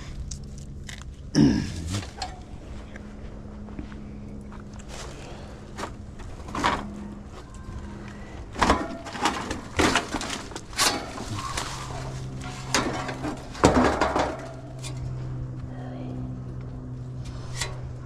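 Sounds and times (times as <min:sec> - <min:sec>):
low steady hum: 0:00.0 - 0:18.0
tools and metal parts clattering: 0:05.7 - 0:15.2.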